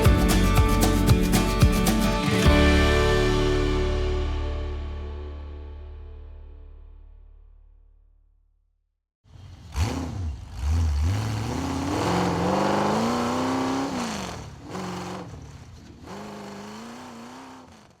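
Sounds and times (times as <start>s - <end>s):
engine revving: 9.3s - 18.0s.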